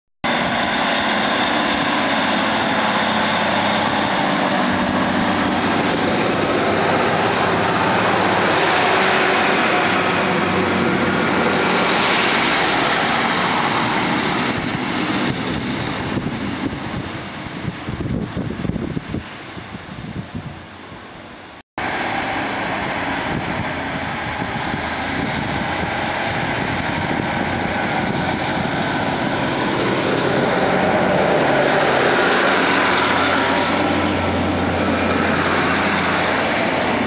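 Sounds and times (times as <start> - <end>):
diesel engines running: 0.3 - 19.2, 20.8 - 37.0
train wheels on rails: 0.3 - 37.0.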